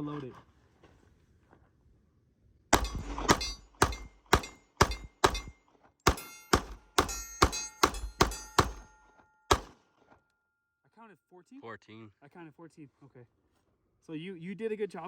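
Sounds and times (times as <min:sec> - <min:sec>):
pistol shots: 0:02.8 - 0:08.9, 0:09.5 - 0:09.8.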